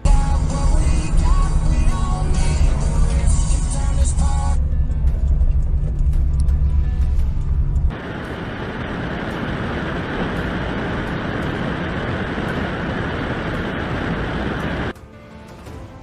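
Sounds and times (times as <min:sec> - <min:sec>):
vehicle and road noise: 0:00.0 - 0:15.0.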